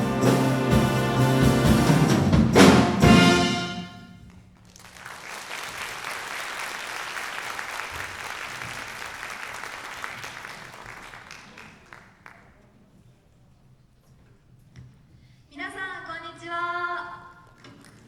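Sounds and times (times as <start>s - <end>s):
audience applauding: 0.0s - 3.8s, 4.6s - 12.5s.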